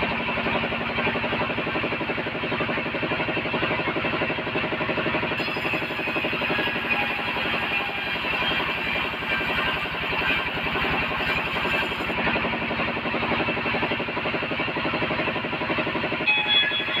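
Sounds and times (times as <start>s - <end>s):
bandsaw sawing timber: 5.4s - 12.2s.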